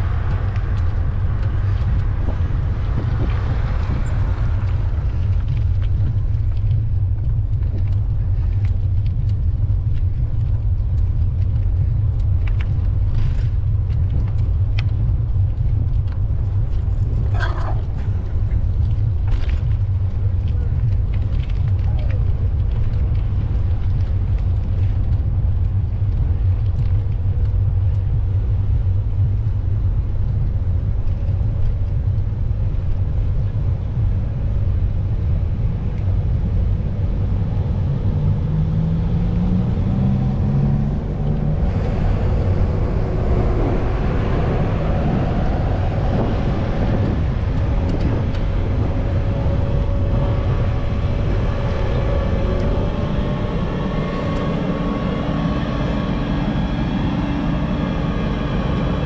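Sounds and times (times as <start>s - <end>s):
low traffic rumble: 0.0s - 59.0s
vehicle engine: 0.0s - 59.0s.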